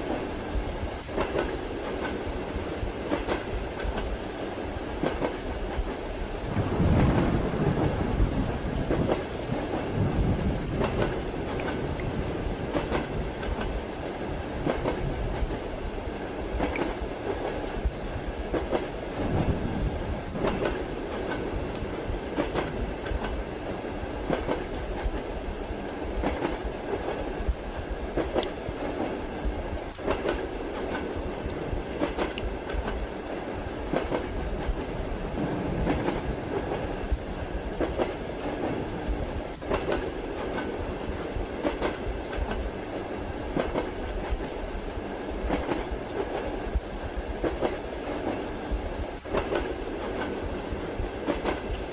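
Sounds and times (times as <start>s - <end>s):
train rumble and hiss: 0.0s - 51.9s
wheels clicking over rail joints: 1.0s - 2.3s, 3.0s - 4.3s, 5.0s - 13.8s, 39.5s - 40.9s.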